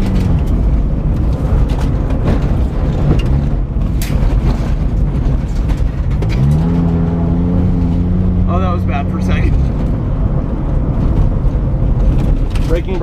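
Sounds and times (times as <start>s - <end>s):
sharp clicks and knocks: 0.0s - 7.0s
car engine running rough: 0.0s - 13.0s
road noise: 0.0s - 13.0s.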